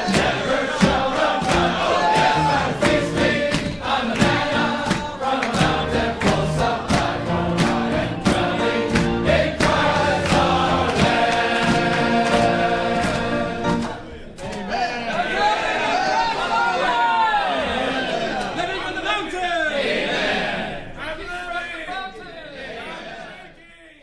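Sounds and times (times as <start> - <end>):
steady accompanying beat: 0.0 - 14.1
choir singing a hymn: 0.0 - 14.4.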